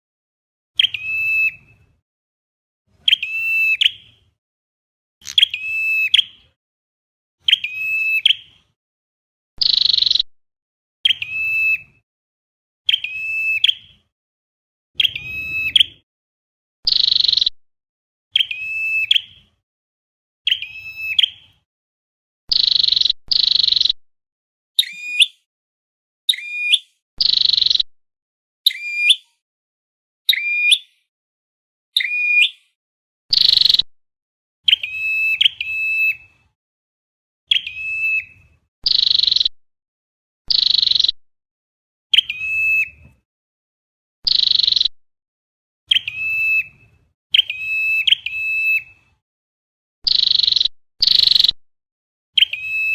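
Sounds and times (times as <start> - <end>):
high-pitched bird call notes: 5.2 - 6.5, 12.9 - 13.9, 15.0 - 16.0, 45.9 - 48.9, 52.4 - 52.9.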